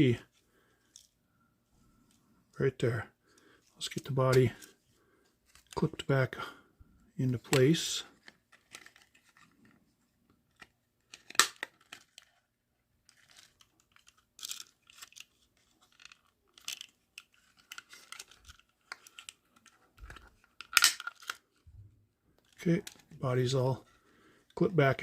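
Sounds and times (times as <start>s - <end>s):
plastic clicks and rustling: 7.4s - 9.8s, 10.5s - 21.6s
plastic snap: 11.1s - 12.0s, 20.0s - 21.4s.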